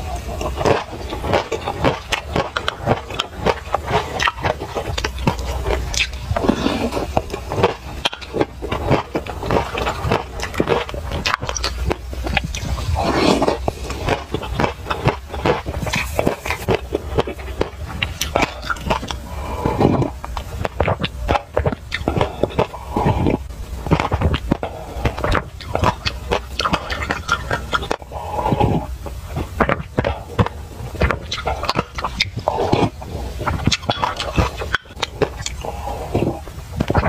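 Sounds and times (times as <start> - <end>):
person chewing crunchy seeds: 0.0 - 37.0.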